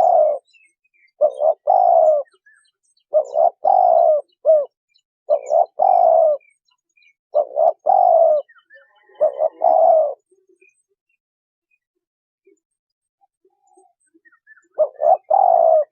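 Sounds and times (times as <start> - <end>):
dove cooing: 0.0 - 6.6, 7.3 - 10.4, 13.8 - 15.9
faint small bird chirps: 0.0 - 15.9.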